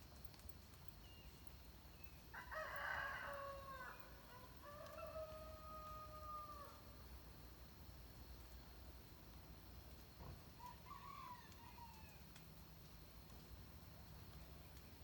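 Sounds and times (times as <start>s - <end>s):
rooster crowing: 2.4s - 6.8s, 10.6s - 12.2s.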